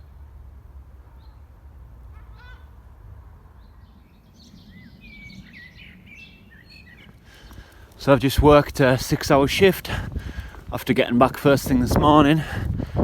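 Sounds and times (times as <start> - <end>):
wind rumble on microphone: 3.0 - 13.0
birds chirping and calling: 3.8 - 8.5.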